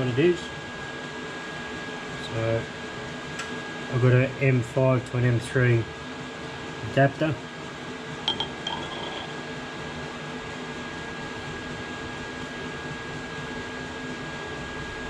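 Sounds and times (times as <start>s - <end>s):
workshop machinery humming: 0.0s - 15.0s
thin high whine: 8.3s - 9.5s.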